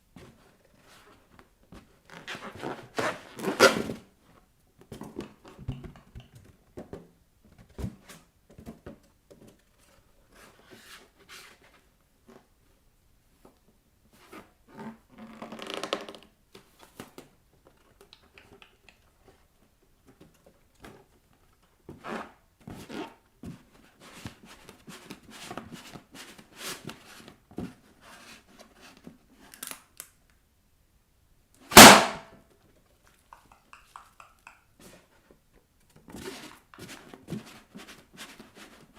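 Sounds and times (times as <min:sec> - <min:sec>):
balloon bursting pop: 0:31.7 - 0:32.3.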